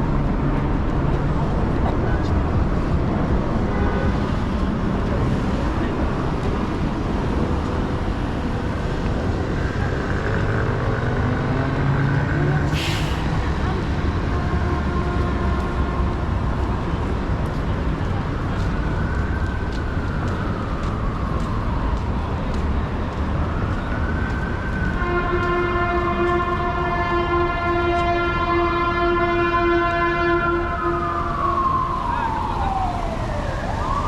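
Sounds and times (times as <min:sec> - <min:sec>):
city traffic: 0:00.0 - 0:34.0
emergency siren wailing: 0:04.6 - 0:34.0
steady horn tone: 0:14.2 - 0:16.5, 0:25.0 - 0:31.1.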